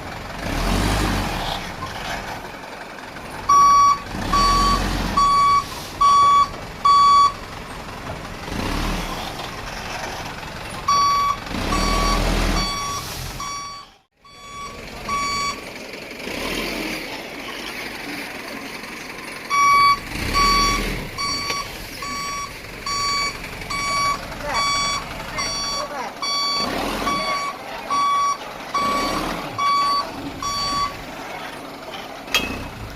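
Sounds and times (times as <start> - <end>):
truck engine: 0.0 - 32.9
truck reversing alarm beeping: 3.4 - 7.6, 10.8 - 15.8, 19.4 - 31.0.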